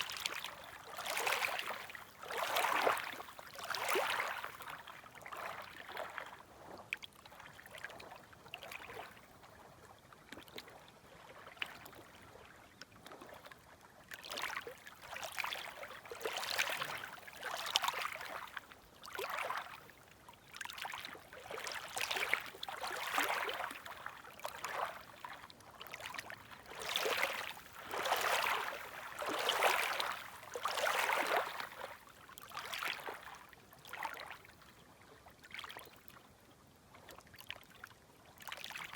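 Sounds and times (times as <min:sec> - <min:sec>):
waves lapping on shore: 0:00.0 - 0:06.7, 0:14.2 - 0:19.8, 0:20.6 - 0:34.3.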